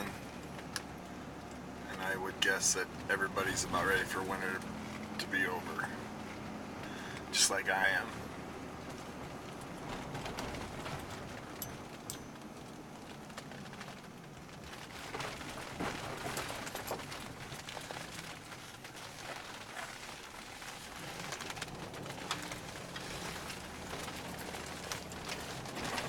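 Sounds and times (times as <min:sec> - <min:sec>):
car road and engine rumble: 0:00.0 - 0:26.0
small clicks and crackles: 0:00.0 - 0:26.0.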